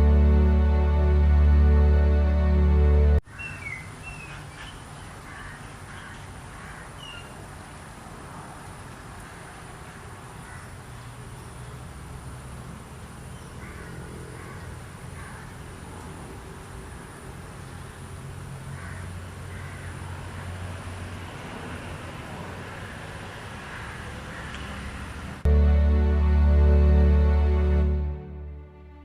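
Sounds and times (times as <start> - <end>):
birds chirping: 3.3 - 7.4.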